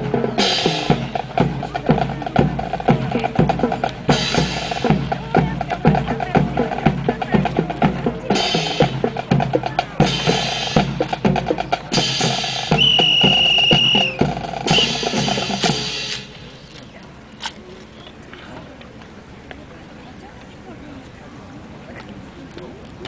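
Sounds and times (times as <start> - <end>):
snare and bass drum cadence: 0.0 - 16.5
whistle blast: 12.7 - 15.2
cymbals clashing: 13.8 - 16.6.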